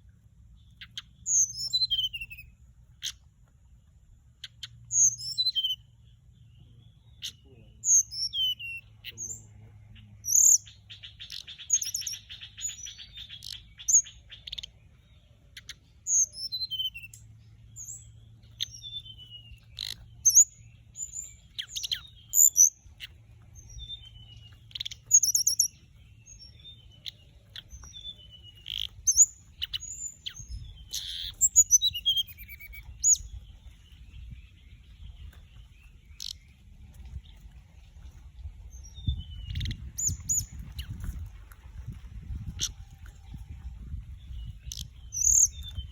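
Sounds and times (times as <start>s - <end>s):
buzzy bird trill: 0.8s - 3.2s, 17.8s - 33.3s
bird chirps and whistles: 0.9s - 2.5s, 4.9s - 5.9s, 7.9s - 8.8s, 15.6s - 17.2s, 24.7s - 25.8s, 28.0s - 33.3s.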